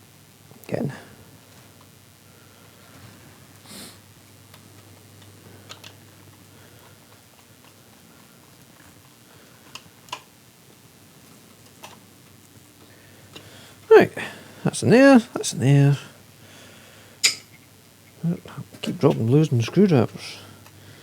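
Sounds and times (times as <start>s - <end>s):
screwdriver and metal parts clicking: 17.2s - 17.6s.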